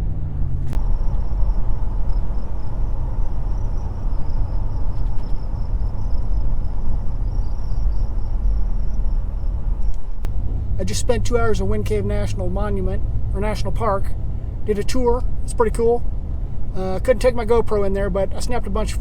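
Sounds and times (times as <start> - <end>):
truck engine and road noise: 0.0 - 19.0
faint high whine: 0.8 - 10.3.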